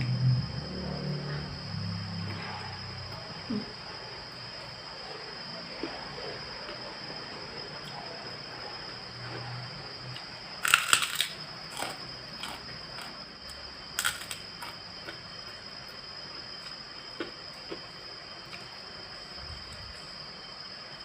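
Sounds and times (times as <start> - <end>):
steady high-pitched whine: 0.0 - 21.0
chewing clicks: 10.1 - 13.1, 14.0 - 15.2
loud crunchy bite: 10.2 - 13.2, 14.0 - 14.8.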